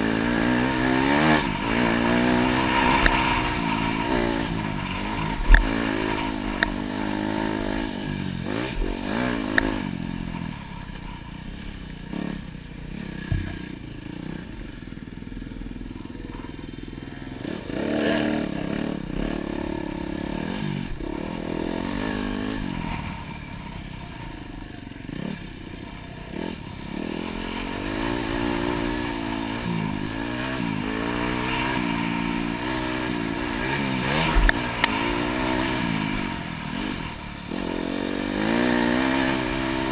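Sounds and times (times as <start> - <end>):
dirt bike engine revving: 0.0 - 39.9
bike knocks and rattles: 13.2 - 13.9.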